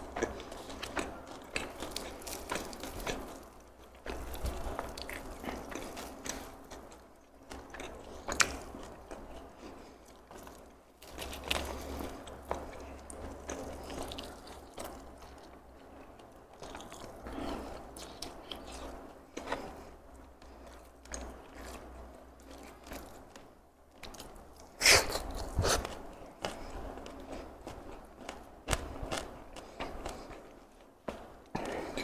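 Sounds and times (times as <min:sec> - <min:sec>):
chewing and crunching: 0:00.0 - 0:32.0.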